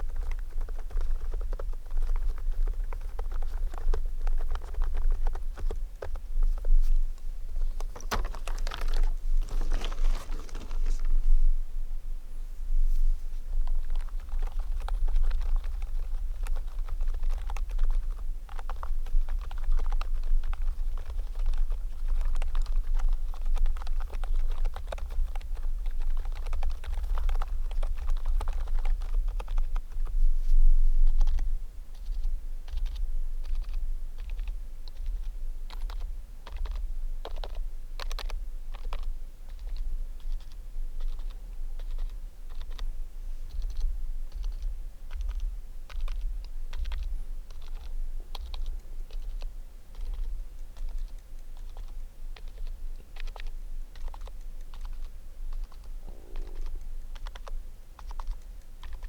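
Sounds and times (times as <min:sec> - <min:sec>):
typing on keyboard: 0:13.9 - 0:29.9, 0:43.5 - 0:59.0
steady low rumble: 0:42.9 - 0:59.0.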